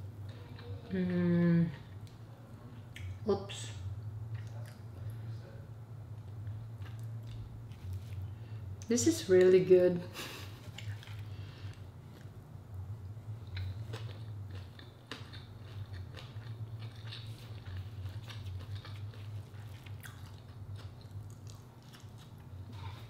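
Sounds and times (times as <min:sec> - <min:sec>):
steady low hum: 0:00.0 - 0:23.0
person chewing food: 0:04.3 - 0:05.2, 0:06.1 - 0:08.6, 0:10.2 - 0:23.0.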